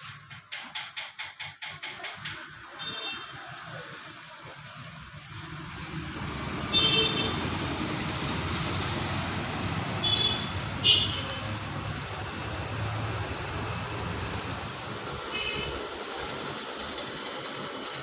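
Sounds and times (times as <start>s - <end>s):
vehicle rumble: 3.5s - 17.2s.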